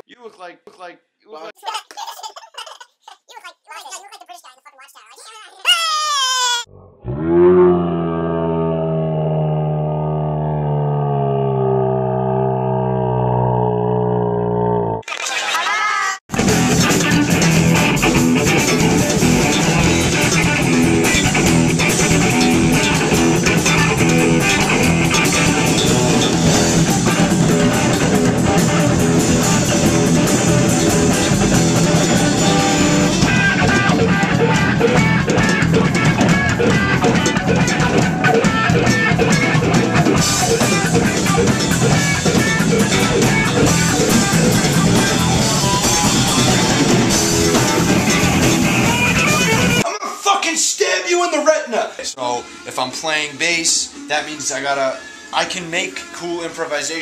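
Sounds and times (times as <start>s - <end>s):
bass guitar: 6.7s - 15.0s, 16.3s - 49.8s
electric guitar: 16.3s - 49.8s
drum kit: 16.3s - 49.9s.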